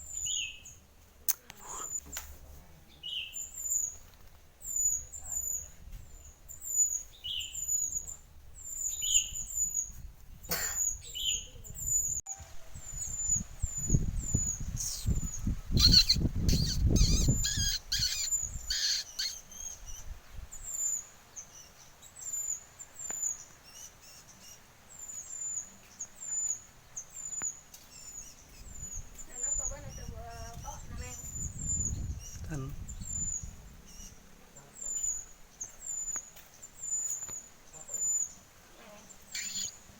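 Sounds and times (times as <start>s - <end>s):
whistled bird phrases: 10.8s - 20.0s, 39.3s - 39.8s.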